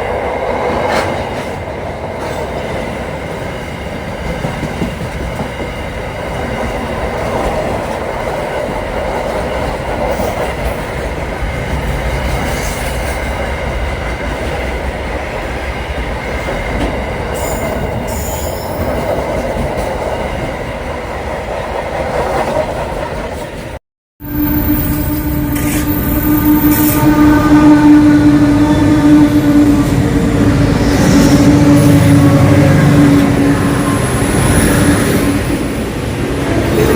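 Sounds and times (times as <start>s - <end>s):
train wheels rumbling on rails: 0.0s - 23.8s, 24.4s - 36.9s
high-pitched squeals: 24.2s - 35.8s.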